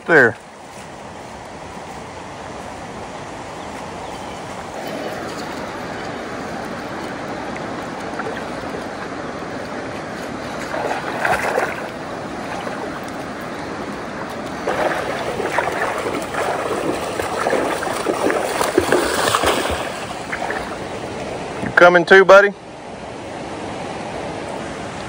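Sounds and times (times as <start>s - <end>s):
creek water running: 0.0s - 25.0s
water splashing: 2.4s - 21.9s.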